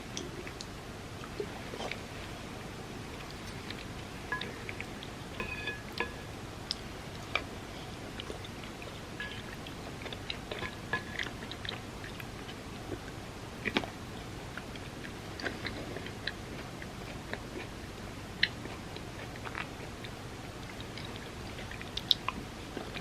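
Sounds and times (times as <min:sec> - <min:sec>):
close chewing with mouth clicks: 0:06.6 - 0:23.0.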